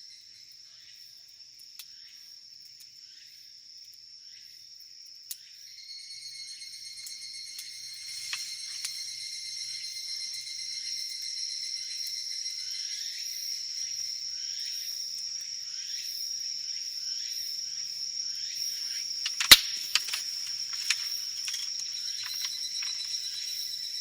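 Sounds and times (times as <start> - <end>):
insects trilling: 0.4 - 24.0
campfire crackling and popping: 19.3 - 21.7.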